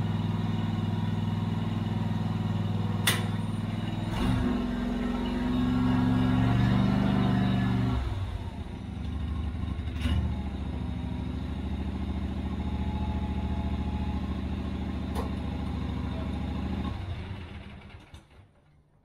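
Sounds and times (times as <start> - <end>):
ride-on mower engine running: 0.0 - 18.6
sharp clack: 3.0 - 3.4.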